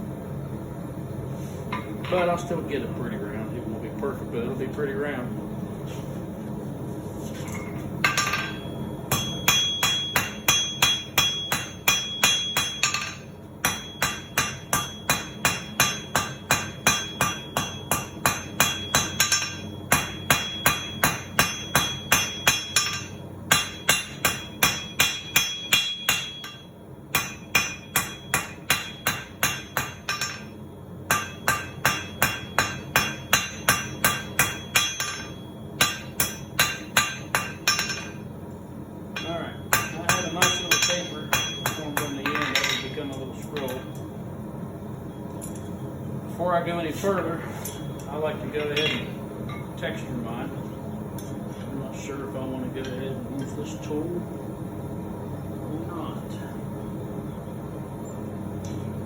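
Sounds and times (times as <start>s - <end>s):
hammer striking steel on anvil: 7.6s - 38.3s, 39.1s - 44.0s, 47.6s - 49.8s.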